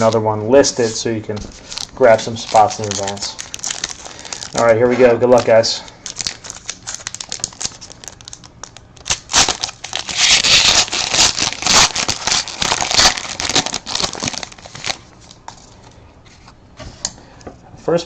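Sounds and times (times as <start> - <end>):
plastic wrapper crinkling and tearing: 1.5 - 15.4.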